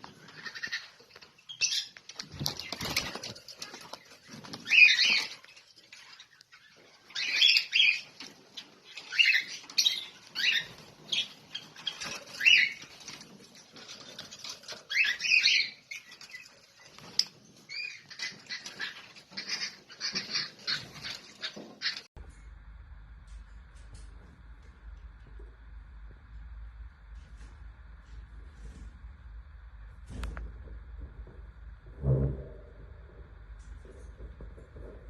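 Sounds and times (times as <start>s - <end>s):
lovebirds chirping: 0.0s - 22.1s.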